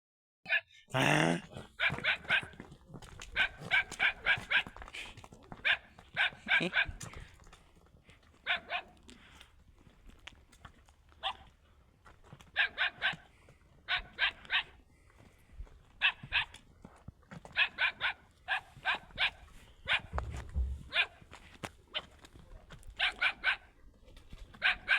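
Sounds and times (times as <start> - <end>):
dog barking: 0.5 - 0.8, 1.7 - 2.6, 3.3 - 4.8, 5.6 - 7.2, 8.4 - 9.0, 11.2 - 11.5, 12.6 - 13.3, 13.9 - 14.8, 16.0 - 16.6, 17.5 - 21.2, 23.0 - 23.8, 24.6 - 24.9
low rumble: 20.1 - 21.0.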